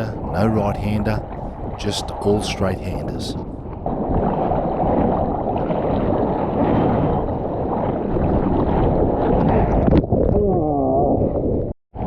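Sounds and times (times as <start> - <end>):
waves breaking on beach: 0.0 - 9.4
wind buffeting microphone: 0.0 - 11.7.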